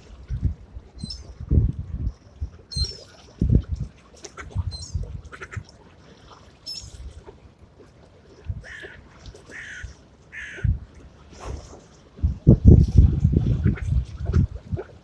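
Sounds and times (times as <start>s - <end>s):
wind rumbling on microphone: 0.0s - 5.8s, 8.3s - 15.0s
crows cawing: 9.5s - 10.7s.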